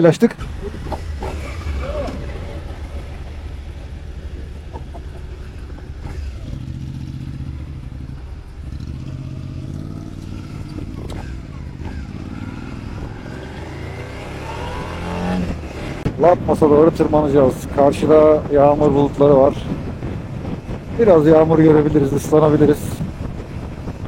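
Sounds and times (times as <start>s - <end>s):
motorcycle engine pulling away: 0.4s - 16.2s.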